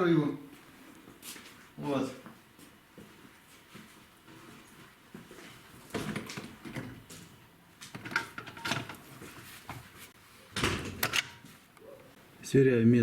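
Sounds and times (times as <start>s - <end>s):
metal clicks and knocks of tools: 7.9s - 9.0s, 11.0s - 11.4s.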